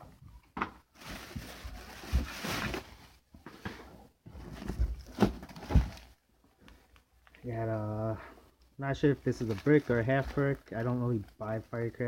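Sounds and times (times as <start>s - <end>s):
packaging rustling: 0.9s - 3.0s, 9.3s - 12.0s.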